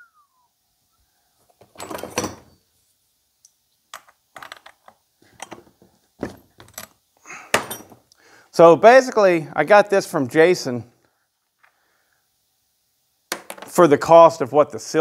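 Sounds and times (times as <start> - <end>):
tools and parts clicking and rattling: 1.5 - 2.6, 3.9 - 8.1, 13.3 - 13.8.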